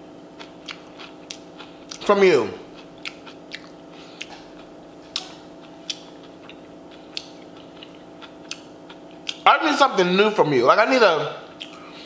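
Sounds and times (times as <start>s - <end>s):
steady low hum: 0.0s - 12.0s
mouth clicks and smacks: 2.9s - 4.5s, 5.1s - 9.4s.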